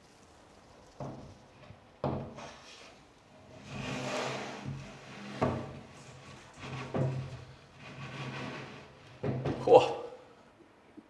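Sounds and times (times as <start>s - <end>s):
shelf board scraping into place: 3.5s - 9.6s.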